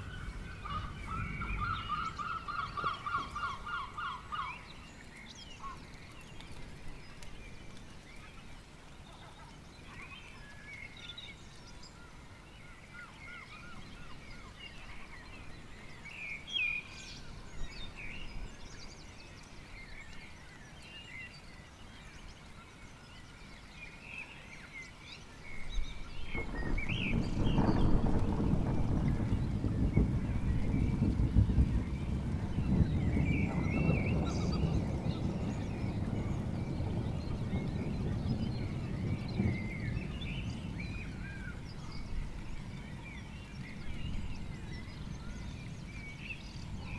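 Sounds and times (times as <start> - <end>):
thunder rumbling: 0.0 - 2.6, 25.9 - 46.9
birds chirping: 25.2 - 46.9.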